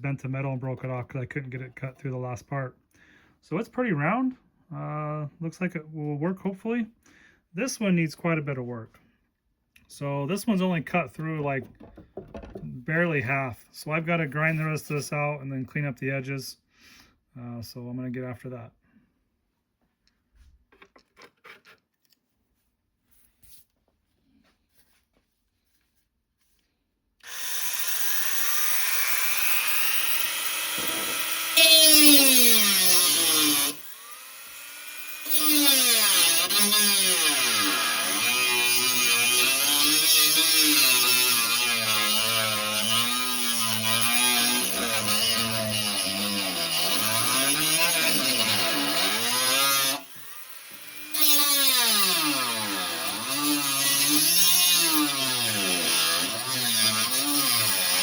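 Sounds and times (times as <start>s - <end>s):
rotary tool grinding metal: 27.2s - 58.0s.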